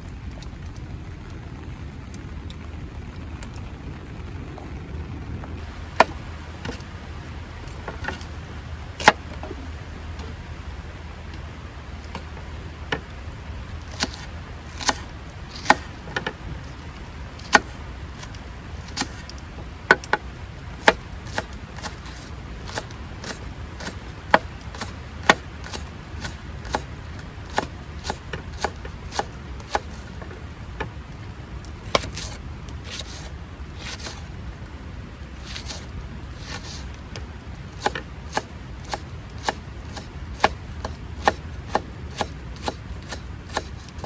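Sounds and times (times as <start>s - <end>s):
low background rumble: 0.0s - 44.0s
knife chopping on cutting board: 13.9s - 15.9s, 27.5s - 30.0s, 32.9s - 34.2s, 35.4s - 35.8s, 36.4s - 36.8s, 37.8s - 43.8s.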